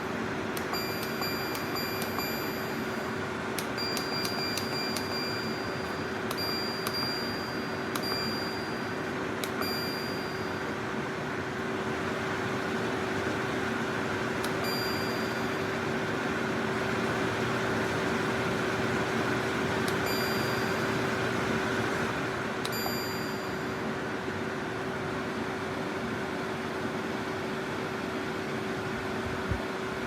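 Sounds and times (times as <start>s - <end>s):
air conditioner running: 0.0s - 30.0s
light metallic tings: 3.7s - 10.7s.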